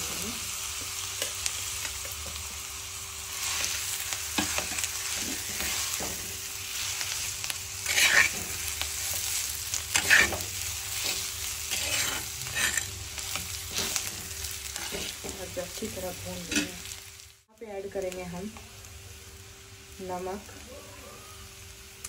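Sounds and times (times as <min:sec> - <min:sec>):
food sizzling in oil: 0:00.0 - 0:22.0
spatula scraping across pan: 0:03.3 - 0:15.5.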